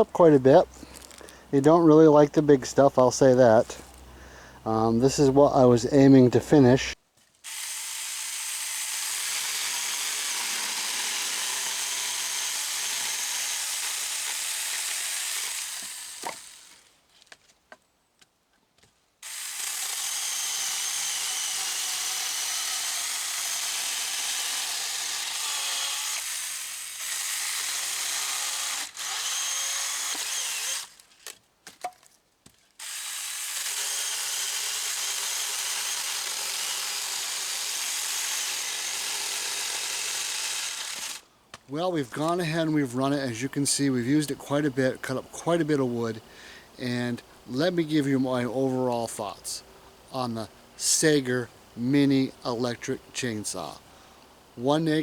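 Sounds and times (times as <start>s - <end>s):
electric chainsaw whining: 7.4s - 17.0s, 19.2s - 31.4s, 32.8s - 41.3s.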